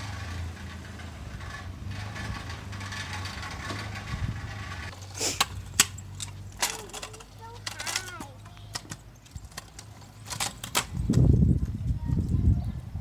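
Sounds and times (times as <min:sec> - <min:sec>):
low motor hum: 0:00.0 - 0:05.0.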